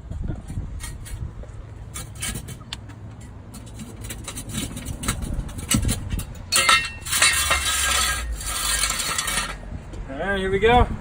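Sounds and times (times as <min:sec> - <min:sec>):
metal clicking and clanking: 0:01.9 - 0:09.6.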